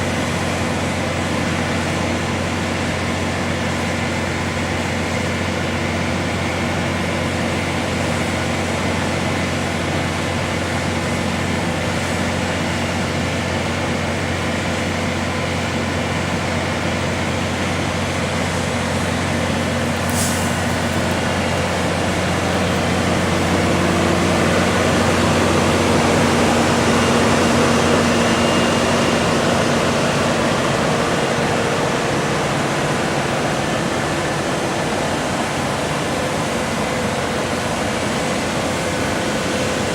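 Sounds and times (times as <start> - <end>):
concrete pump engine droning: 0.0 - 39.9
brief hiss: 19.9 - 23.0.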